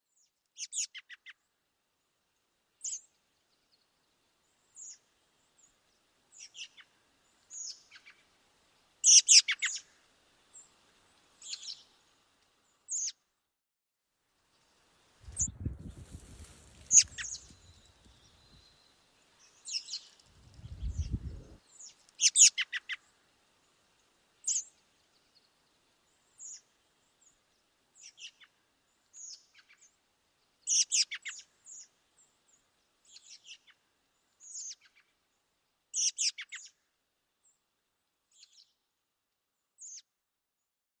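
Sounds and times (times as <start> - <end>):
birds chirping: 16.8 - 23.0
low rumble: 20.4 - 21.6.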